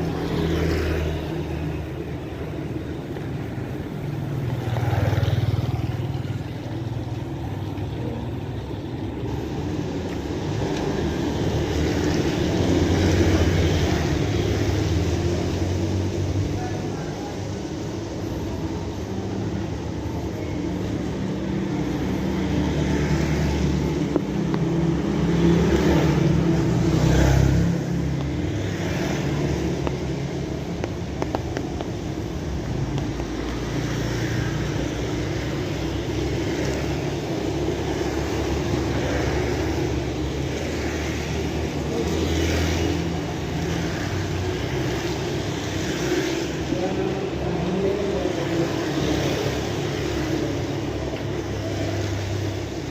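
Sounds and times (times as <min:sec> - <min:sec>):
steady rain falling: 0:20.8 - 0:52.9.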